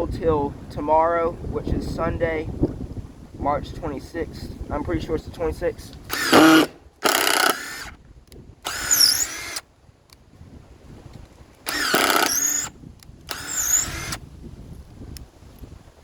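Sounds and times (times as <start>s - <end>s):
cordless driver spinning: 6.0s - 8.0s, 8.6s - 9.6s, 11.6s - 14.2s.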